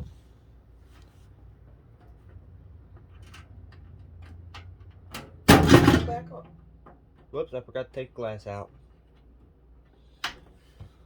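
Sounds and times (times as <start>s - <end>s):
loud metallic clatter: 5.5s - 6.3s.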